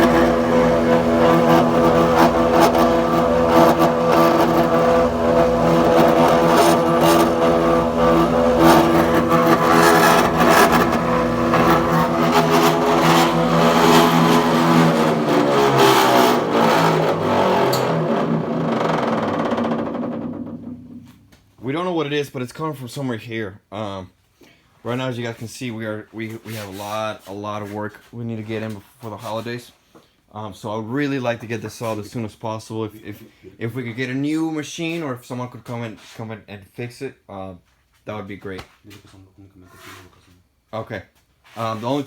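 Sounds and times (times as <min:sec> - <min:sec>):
planer-jointer motor running: 0:00.0 - 0:20.9.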